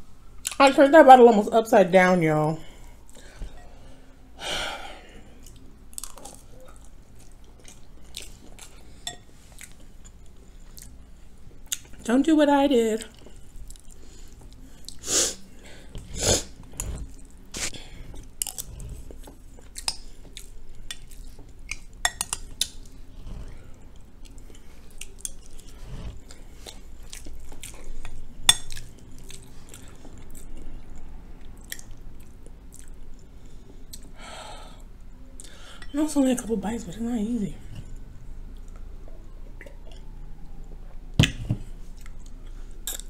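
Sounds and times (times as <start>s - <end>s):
chewing: 5.2s - 12.1s, 13.0s - 34.1s, 41.8s - 43.0s.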